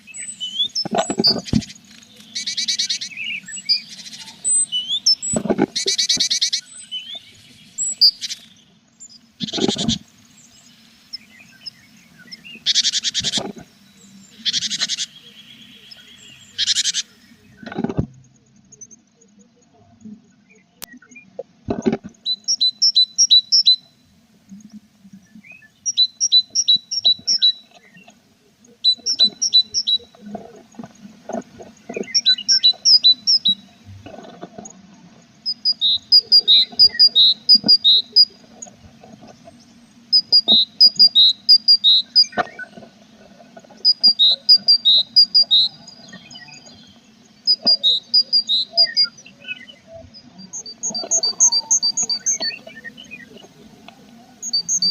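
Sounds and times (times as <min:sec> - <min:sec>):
birds calling high paired notes: 0:22.2 - 0:24.0, 0:28.7 - 0:30.2, 0:32.0 - 0:33.7, 0:35.5 - 0:38.4, 0:43.8 - 0:53.6, 0:54.4 - 0:54.9.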